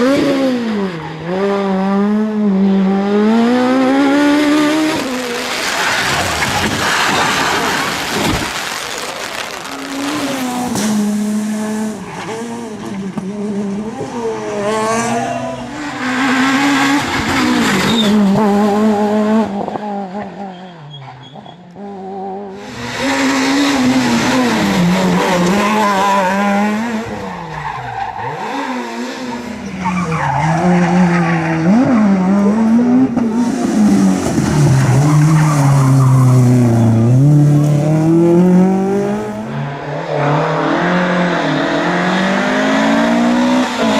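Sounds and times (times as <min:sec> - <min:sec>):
rally car engines revving: 0:00.0 - 0:43.9
tyres skidding: 0:03.7 - 0:19.1, 0:22.6 - 0:43.9.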